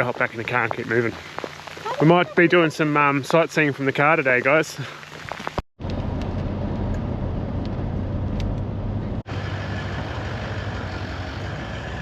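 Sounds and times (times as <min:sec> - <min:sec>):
engine and road drone: 0:05.8 - 0:12.0.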